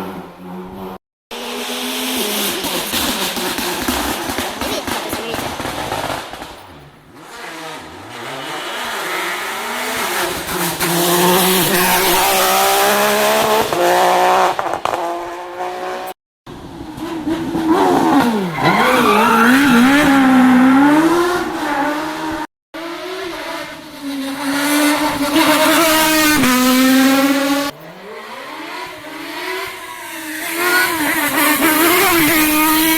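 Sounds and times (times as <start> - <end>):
car engine revving: 0.0 - 32.9
rally car engines at full throttle: 0.0 - 32.9.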